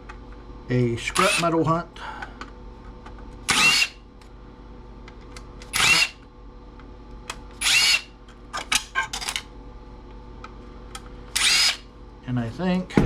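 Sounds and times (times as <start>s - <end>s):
power drill whining: 3.5s - 3.9s, 5.7s - 6.2s, 7.6s - 8.1s, 11.4s - 11.8s.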